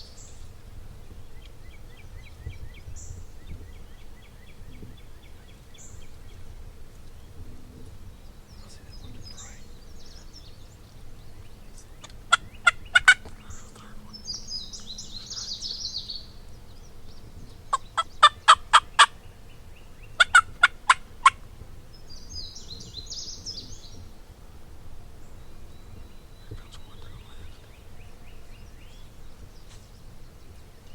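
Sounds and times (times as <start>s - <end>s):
outdoor ambience: 0.0s - 30.9s
songbird singing faintly: 0.0s - 30.9s
turkey yelping: 12.0s - 13.3s, 17.7s - 19.2s, 20.2s - 21.5s.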